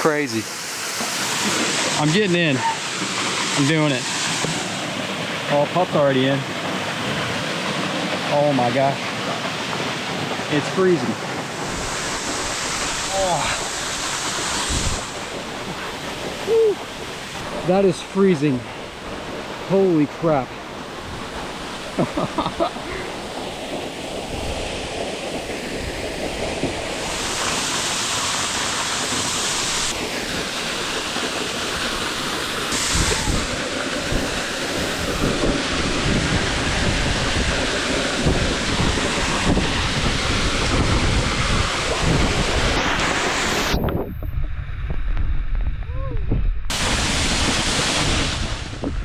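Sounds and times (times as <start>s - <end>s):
waterfall roaring: 0.0s - 44.0s, 46.7s - 49.0s
wind buffeting microphone: 11.1s - 17.7s, 29.6s - 49.0s.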